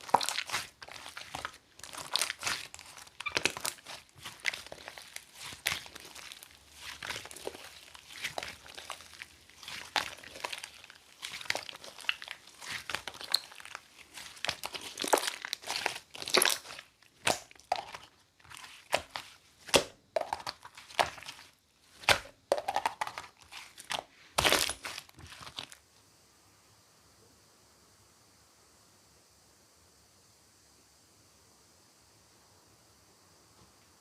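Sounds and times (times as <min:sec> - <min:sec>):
slime squished by hand: 0:00.0 - 0:25.8.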